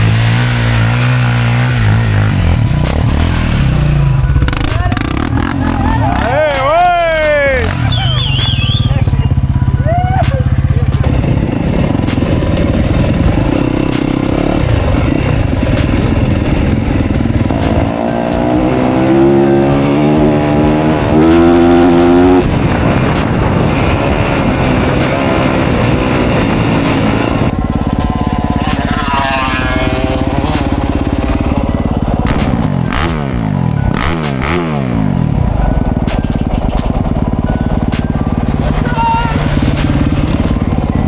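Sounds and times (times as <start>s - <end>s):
dirt bike engine revving: 0.0s - 41.0s.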